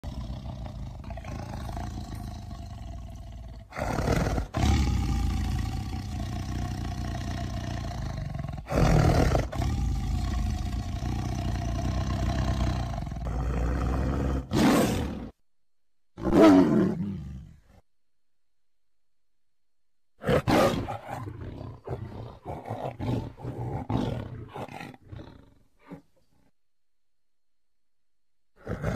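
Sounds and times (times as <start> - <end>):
tiger growling: 0.0 - 15.4, 16.2 - 17.8, 20.2 - 26.5, 28.6 - 28.9
tiger roaring: 0.0 - 15.4, 16.2 - 17.6, 20.2 - 26.1, 28.6 - 28.9.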